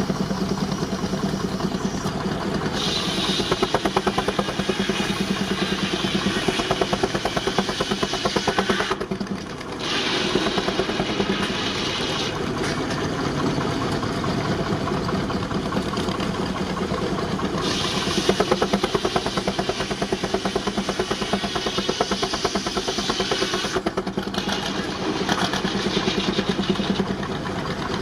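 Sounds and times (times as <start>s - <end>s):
steam engine exhaust beating: 0.0s - 28.0s
steam hiss: 1.1s - 9.1s, 9.8s - 12.4s, 17.6s - 26.6s.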